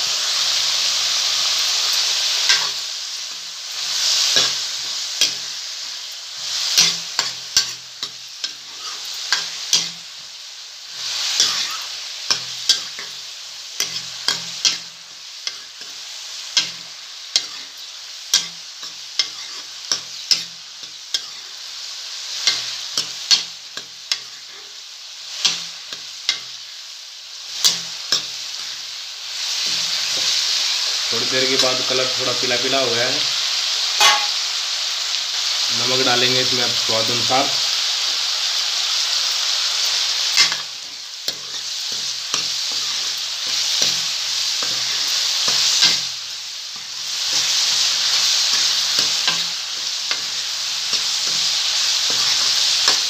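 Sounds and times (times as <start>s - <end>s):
onions sizzling in oil: 0.0s - 53.0s
metal spoon clacking on pan: 34.0s - 34.4s.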